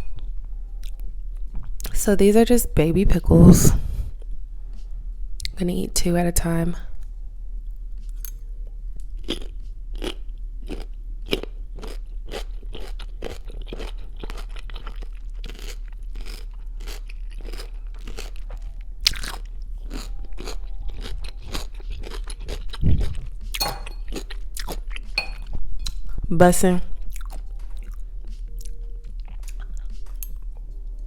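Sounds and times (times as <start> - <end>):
crisp crunches of pickle chewing: 9.2 - 23.2.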